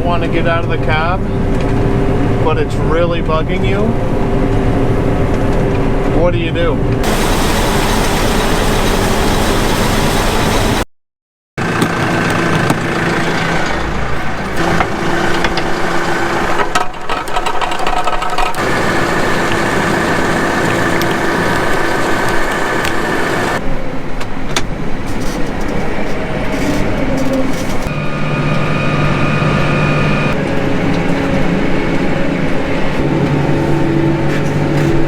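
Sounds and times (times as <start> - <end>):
combine harvester humming: 0.0 - 10.8, 11.6 - 35.0.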